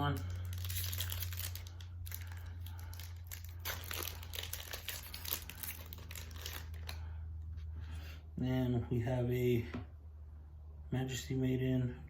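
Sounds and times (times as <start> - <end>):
foil wrapper crinkling and tearing: 0.0 - 7.1
steady low hum: 0.0 - 12.0.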